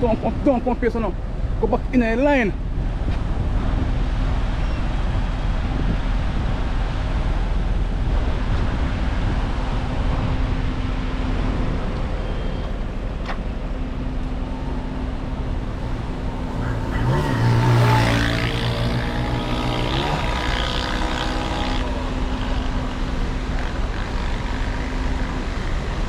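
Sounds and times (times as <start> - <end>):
vehicle engines rumbling: 0.0 - 26.0.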